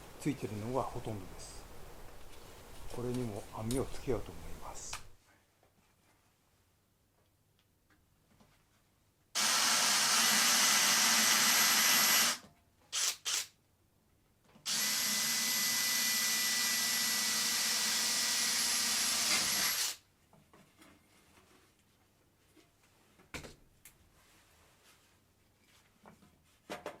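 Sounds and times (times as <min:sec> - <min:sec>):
electric power tool running: 0:09.4 - 0:12.4, 0:14.7 - 0:20.0.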